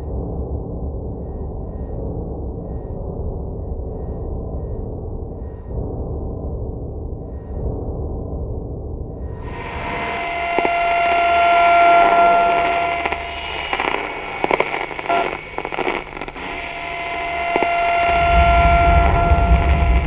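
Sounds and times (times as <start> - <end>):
crackling clicks: 9.4 - 20.0
static hiss: 9.4 - 20.0.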